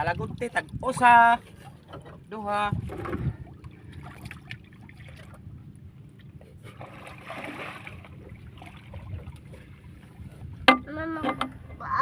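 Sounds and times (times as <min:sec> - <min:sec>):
water trickling and sloshing: 0:00.0 - 0:12.0
water splash: 0:06.7 - 0:09.7.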